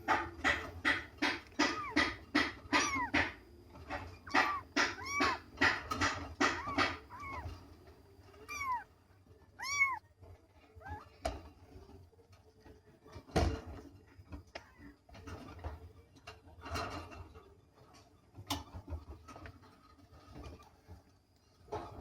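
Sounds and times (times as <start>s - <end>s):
knocks and clicks: 0.0s - 8.8s.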